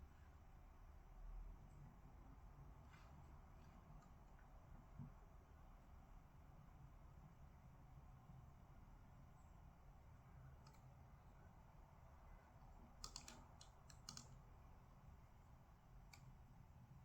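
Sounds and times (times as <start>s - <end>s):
low room hum: 0.0s - 17.0s
computer keyboard typing: 13.0s - 14.4s.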